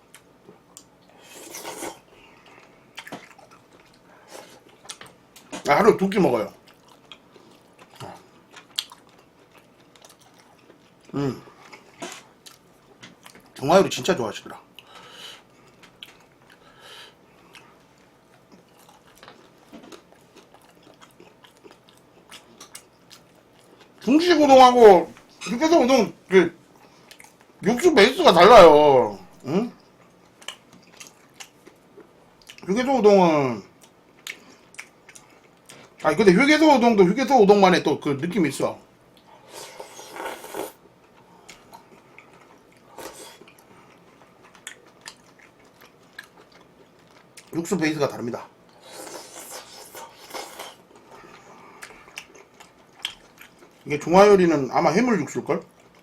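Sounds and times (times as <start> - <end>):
person chewing food: 0.0 - 5.5, 6.6 - 13.6, 14.7 - 24.0, 29.8 - 32.6, 33.8 - 36.0, 39.1 - 47.6, 48.6 - 53.9, 55.7 - 56.0.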